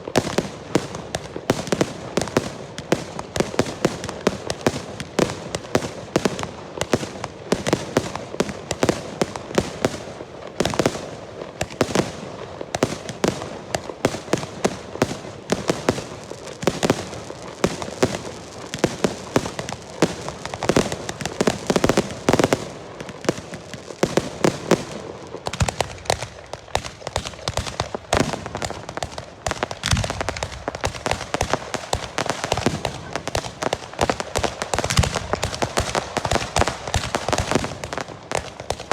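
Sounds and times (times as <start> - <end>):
fireworks bangs and cracks: 0.0 - 38.9.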